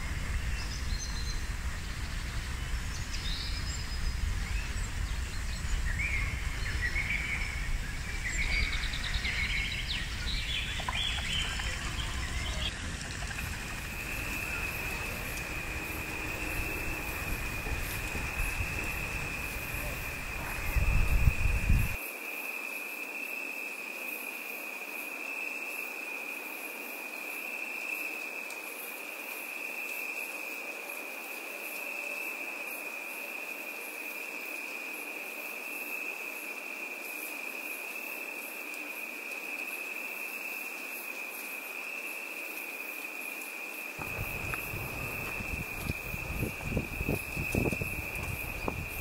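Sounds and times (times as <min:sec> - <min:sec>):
insects trilling: 0:00.0 - 0:49.0
low rumble: 0:44.0 - 0:49.0
low thuds: 0:44.0 - 0:49.0.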